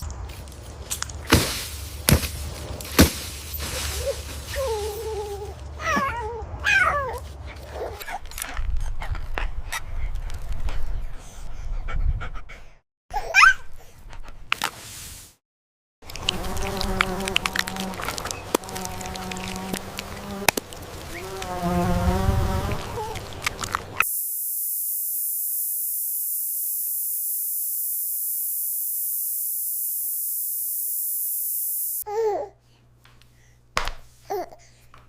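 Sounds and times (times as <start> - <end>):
fly buzzing: 16.1 - 32.0
steady high hiss: 24.0 - 32.0.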